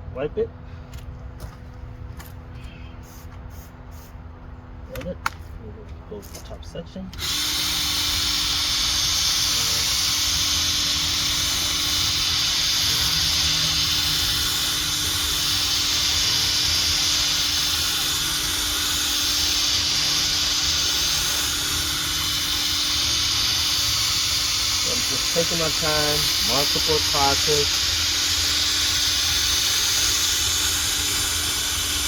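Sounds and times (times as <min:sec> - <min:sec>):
power sander hissing: 0:07.0 - 0:32.0.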